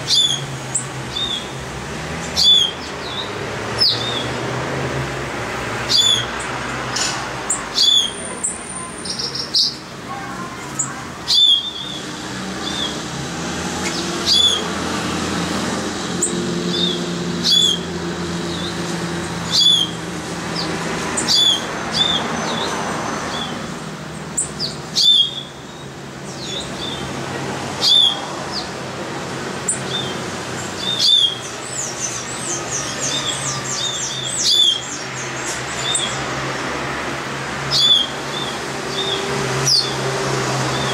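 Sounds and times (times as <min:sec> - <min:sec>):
bird sharp sweeping call: 0:00.0 - 0:01.5, 0:02.3 - 0:04.4, 0:05.9 - 0:06.3, 0:07.5 - 0:09.8, 0:10.8 - 0:13.0, 0:13.7 - 0:14.8, 0:16.2 - 0:18.8, 0:19.4 - 0:20.0, 0:20.6 - 0:22.7, 0:24.4 - 0:27.0, 0:27.8 - 0:28.7, 0:29.7 - 0:36.1
high bird chirps: 0:00.0 - 0:01.6, 0:02.2 - 0:04.4, 0:05.8 - 0:09.9, 0:10.7 - 0:13.0, 0:13.8 - 0:14.7, 0:16.2 - 0:17.9, 0:18.5 - 0:20.0, 0:20.6 - 0:23.6, 0:24.4 - 0:27.1, 0:29.7 - 0:36.2.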